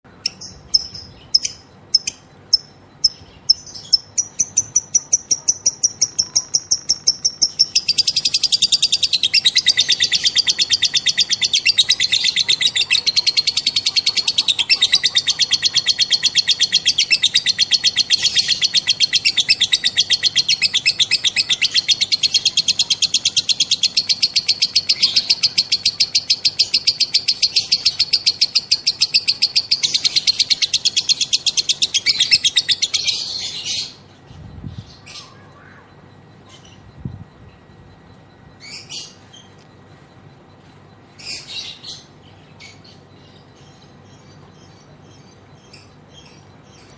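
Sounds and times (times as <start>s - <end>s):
lovebird chirping and chattering: 0.1s - 46.9s.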